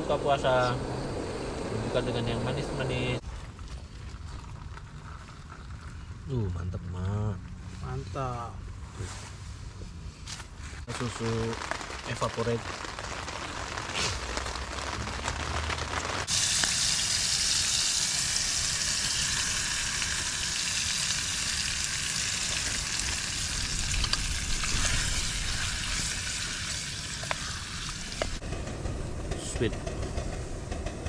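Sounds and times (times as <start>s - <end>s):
food sizzling in a pot: 10.9s - 28.4s.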